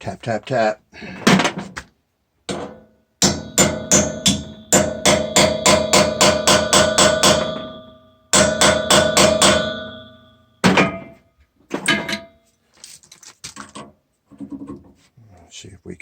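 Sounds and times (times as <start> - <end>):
hammer striking metal: 2.5 - 11.2, 11.8 - 12.4.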